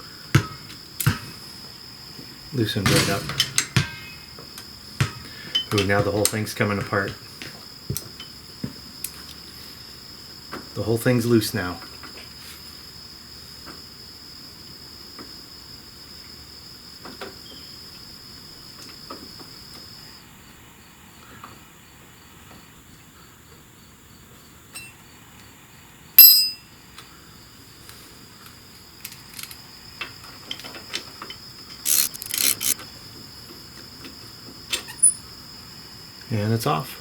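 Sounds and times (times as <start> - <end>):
insects trilling: 0.0 - 37.0
metal clicks clattering: 2.9 - 4.2
sharp metallic clink: 2.9 - 4.3, 24.8 - 25.0, 26.2 - 26.7.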